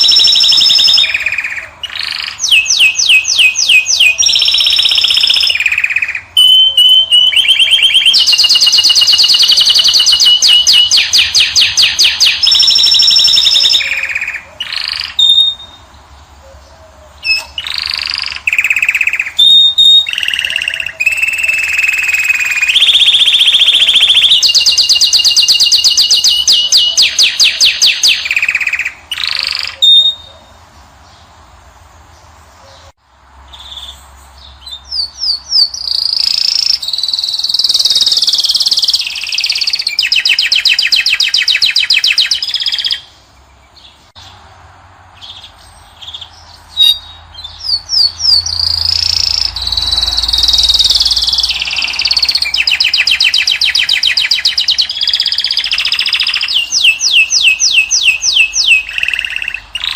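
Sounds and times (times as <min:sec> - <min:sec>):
goldfinch twittering and trilling: 0:00.0 - 0:15.9, 0:45.2 - 0:59.9.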